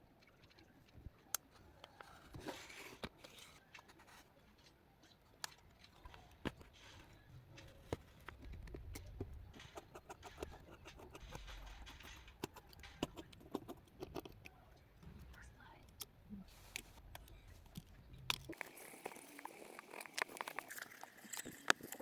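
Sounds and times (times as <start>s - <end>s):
small tools clicking and tapping: 4.5s - 16.1s.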